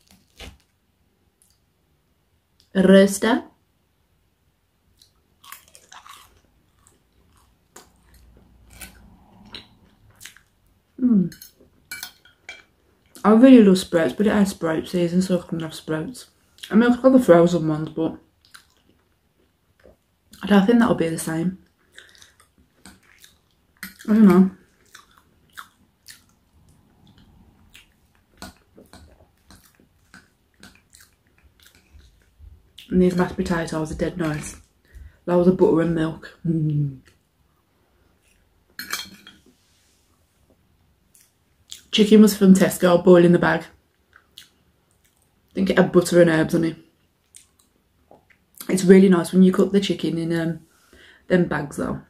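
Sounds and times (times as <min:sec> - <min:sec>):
person chewing crunchy food: 0:05.0 - 0:10.6, 0:21.7 - 0:33.3
wet chewing clicks and smacks: 0:24.8 - 0:32.9.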